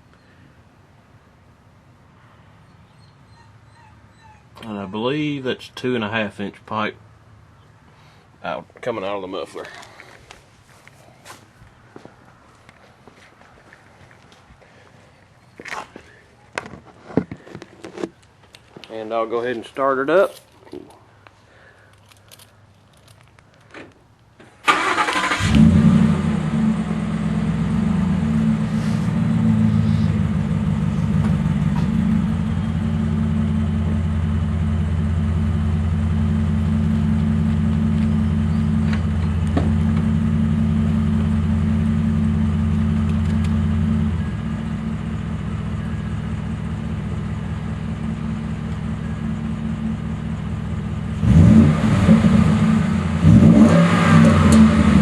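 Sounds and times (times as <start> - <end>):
engine idling: 24.7 - 51.5.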